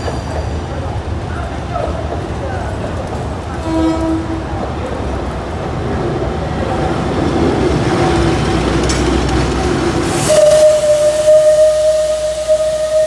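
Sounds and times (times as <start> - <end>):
steam locomotive rumbling: 0.0 - 13.0
steam whistle blast: 10.1 - 13.0.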